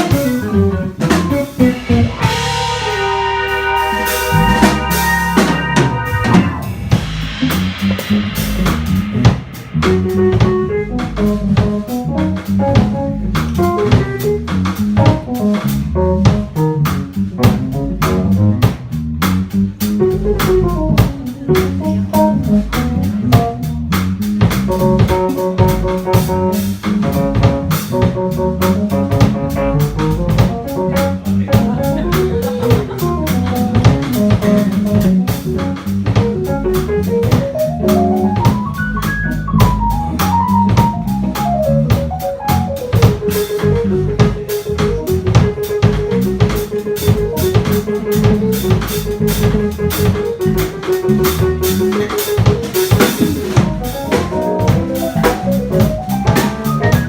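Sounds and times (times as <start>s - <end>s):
guitar melody: 0.0s - 7.5s, 53.3s - 57.0s
bass: 0.0s - 57.0s
drum kit steady beat: 0.0s - 57.0s
piano: 0.0s - 57.0s.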